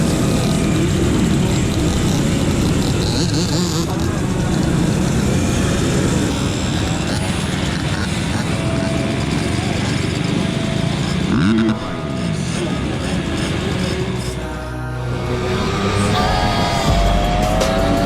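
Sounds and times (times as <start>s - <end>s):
two-stroke moped engine running: 0.0s - 18.0s.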